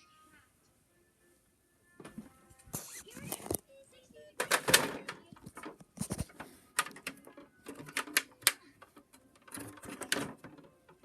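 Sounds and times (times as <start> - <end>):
toys clicking and knocking: 4.4 - 11.0.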